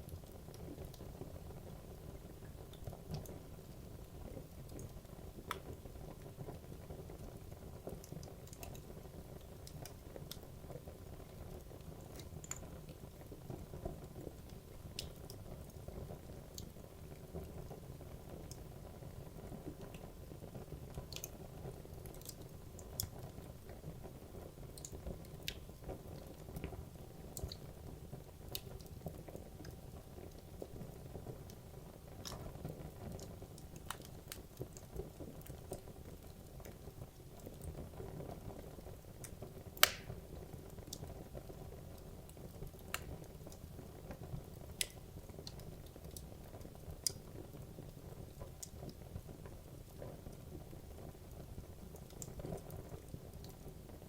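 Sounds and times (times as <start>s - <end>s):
fire crackles and pops: 0.0s - 54.0s
low rumble of flame: 0.0s - 54.0s.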